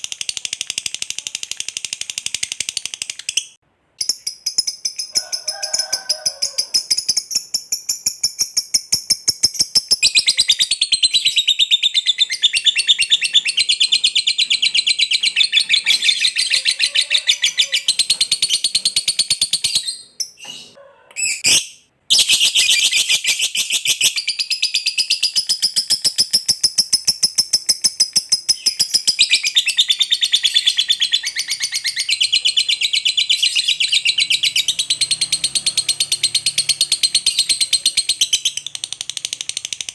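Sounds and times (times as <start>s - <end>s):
lovebird chattering trill: 0.1s - 20.4s.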